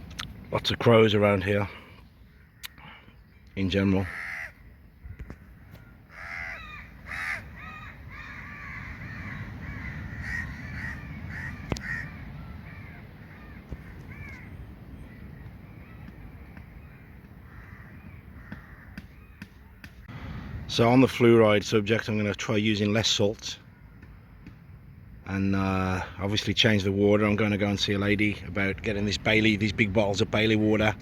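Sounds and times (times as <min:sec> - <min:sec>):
crows cawing: 0:02.2 - 0:03.2, 0:03.9 - 0:19.6
low rumble: 0:20.1 - 0:20.9.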